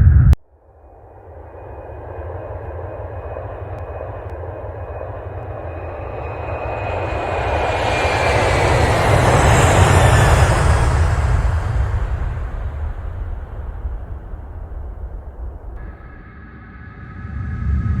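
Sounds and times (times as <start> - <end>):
faint high whine: 0.0 - 18.0
low rumbling roar: 7.7 - 18.0.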